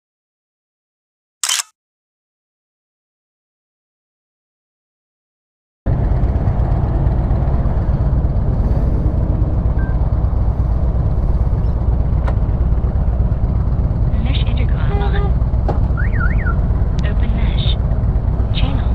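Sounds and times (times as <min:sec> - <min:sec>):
motorcycle engine running: 0:05.9 - 0:18.9
wind and road noise: 0:05.9 - 0:18.9.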